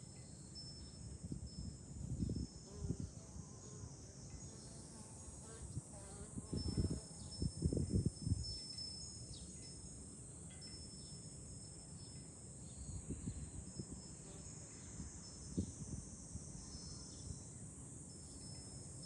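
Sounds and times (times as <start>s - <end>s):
wind rumbling on microphone: 0.8s - 3.5s, 5.6s - 9.6s, 12.9s - 17.4s
cicadas shrilling: 6.5s - 19.0s.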